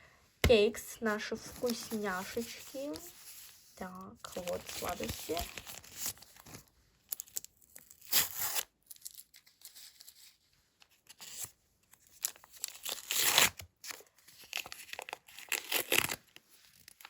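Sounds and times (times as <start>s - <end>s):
paper crinkling: 1.2s - 17.0s
paper packet tearing: 4.3s - 10.4s, 12.1s - 17.0s.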